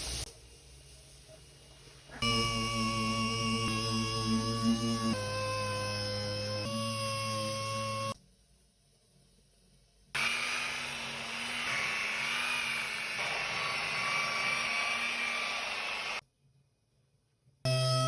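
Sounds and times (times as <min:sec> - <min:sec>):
small electric motor running: 0:10.2 - 0:16.2.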